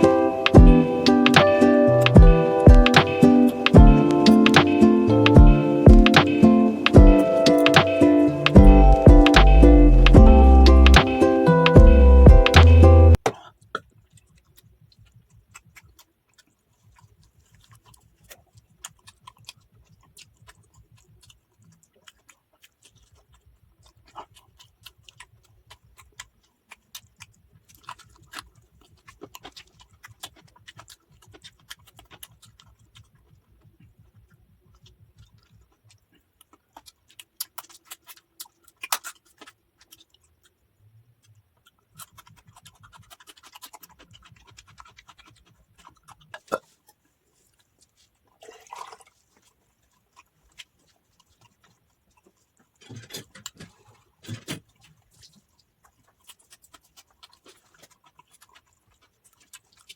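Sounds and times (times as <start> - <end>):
chewing: 0.0 - 59.9
small clicks and scrapes: 13.3 - 48.4, 49.1 - 59.9.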